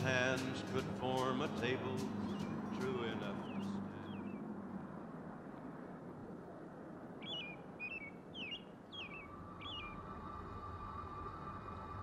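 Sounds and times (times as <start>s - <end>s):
small bird chirping: 7.2s - 10.0s.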